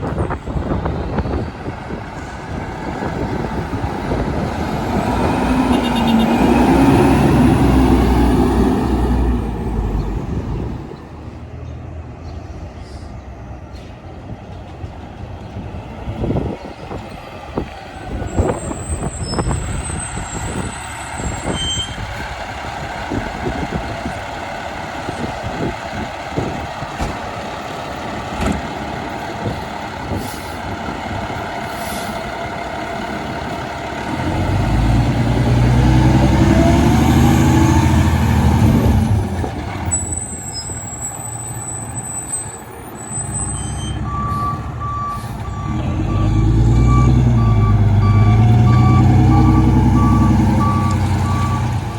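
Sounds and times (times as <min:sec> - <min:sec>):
city street noise: 0:00.0 - 0:51.9
fire truck diesel engine: 0:00.0 - 0:51.9
reversing beeper: 0:39.9 - 0:51.8.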